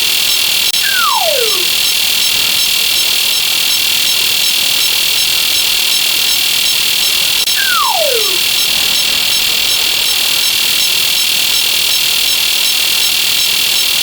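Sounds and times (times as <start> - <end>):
shrill electronic buzz: 0.0 - 14.0
slide whistle falling glide: 0.8 - 1.7, 7.5 - 9.0.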